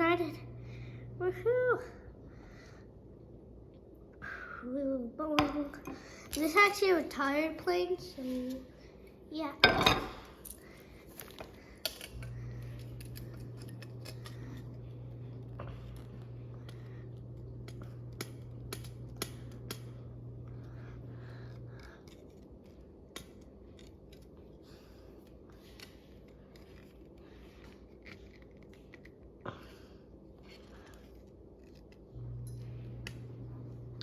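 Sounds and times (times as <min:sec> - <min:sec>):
low hum: 0:00.0 - 0:04.7, 0:11.8 - 0:25.8, 0:29.5 - 0:34.0.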